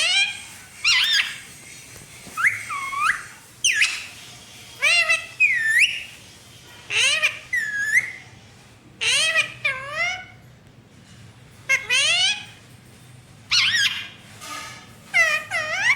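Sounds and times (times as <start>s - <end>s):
parrot calling in a whistle-like voice: 0.0s - 1.4s, 2.4s - 4.1s, 4.8s - 6.2s, 6.9s - 8.2s, 13.5s - 14.1s, 15.1s - 15.9s.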